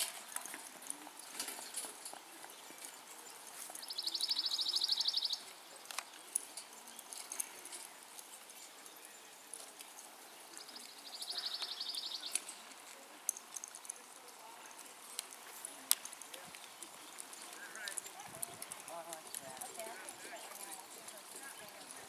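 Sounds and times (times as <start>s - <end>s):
songbird trill: 1.2s - 12.7s.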